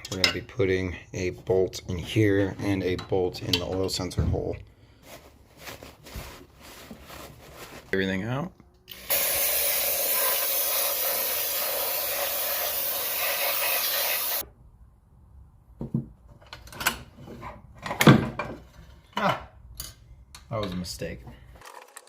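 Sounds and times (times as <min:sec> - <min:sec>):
air spraying hiss: 0:09.1 - 0:14.4.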